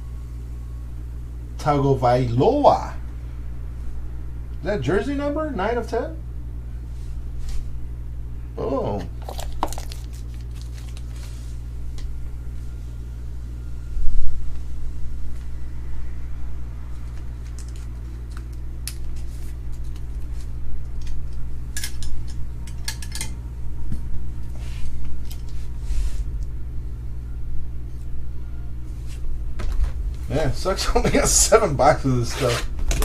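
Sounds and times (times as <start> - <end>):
low electrical hum: 0.0 - 33.0
cards and packaging handled: 9.2 - 11.5, 17.0 - 20.5.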